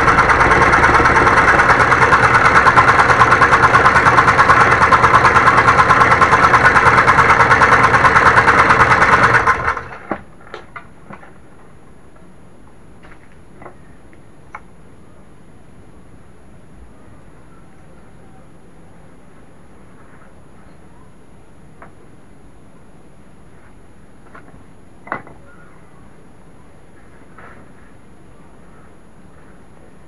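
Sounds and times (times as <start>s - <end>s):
scroll saw running: 0.0s - 9.9s.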